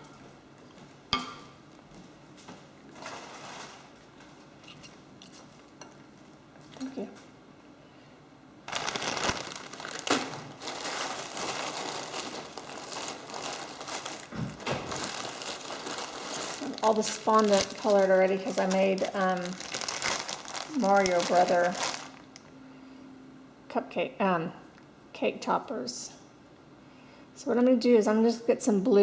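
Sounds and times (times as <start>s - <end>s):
plastic wrapping crinkling: 2.9s - 4.8s, 8.7s - 22.5s.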